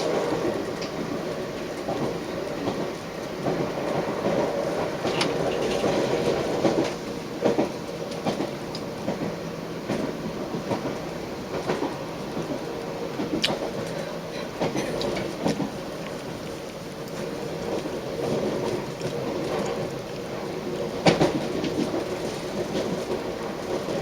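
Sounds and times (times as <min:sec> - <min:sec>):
train rumbling on track: 0:00.0 - 0:24.0.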